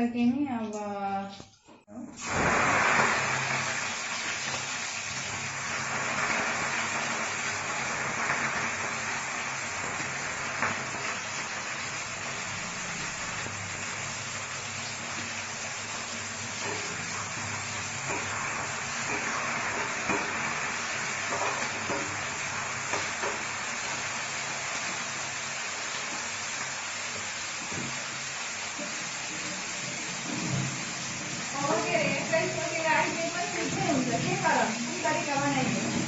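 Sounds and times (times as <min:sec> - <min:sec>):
hot oil sizzling in a pan: 0:02.2 - 0:36.0.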